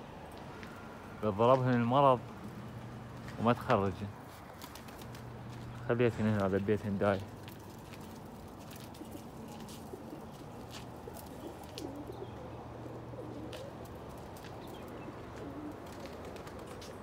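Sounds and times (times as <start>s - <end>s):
pigeons cooing: 8.2s - 17.0s.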